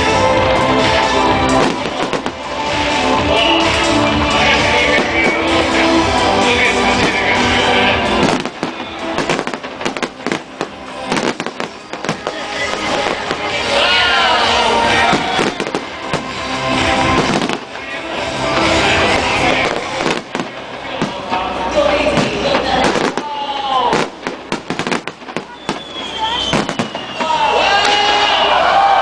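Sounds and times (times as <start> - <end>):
fireworks bangs and crackles: 0.0 - 28.3
loud music from sound system: 0.0 - 29.0.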